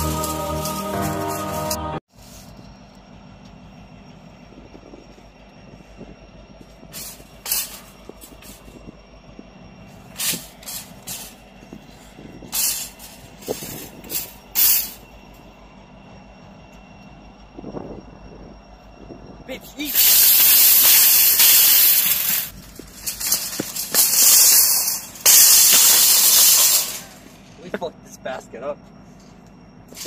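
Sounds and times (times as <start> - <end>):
sharp scraping hisses: 6.9 - 8.7, 10.0 - 15.1, 19.8 - 27.5
shopping cart rattling on concrete: 7.0 - 8.7, 12.5 - 15.0, 19.8 - 27.4.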